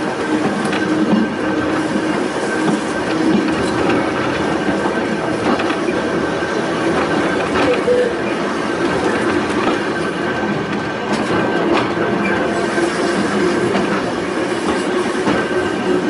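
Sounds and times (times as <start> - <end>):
electric railway car humming: 0.0 - 16.0
wheels clicking over rail joints: 0.4 - 12.5.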